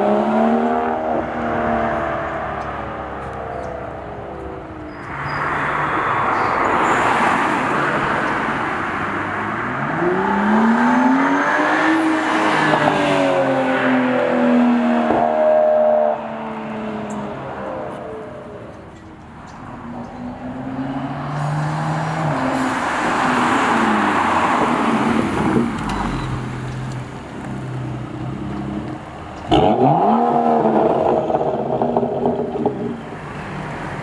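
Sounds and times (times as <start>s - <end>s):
car engine accelerating: 0.0s - 34.0s.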